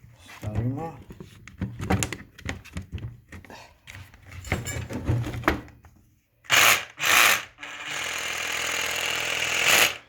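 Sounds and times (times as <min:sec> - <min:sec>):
hammer drill motor running: 0:06.5 - 0:10.0.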